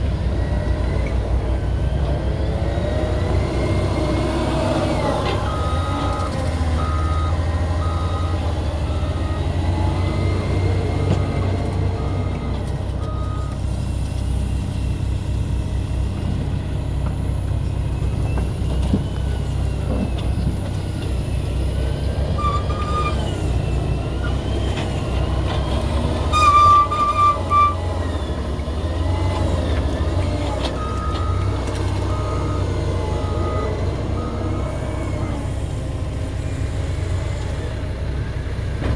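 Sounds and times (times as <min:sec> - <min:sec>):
diesel engine running under load: 0:00.0 - 0:38.9
reversing alarm beeping: 0:03.2 - 0:13.6, 0:22.4 - 0:35.4.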